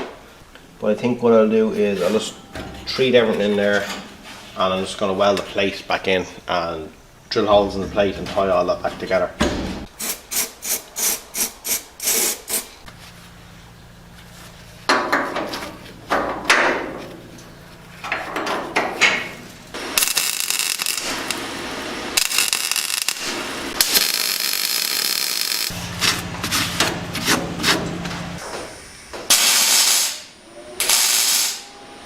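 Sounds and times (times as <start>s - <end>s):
steady hiss bursts: 28.6s - 31.7s.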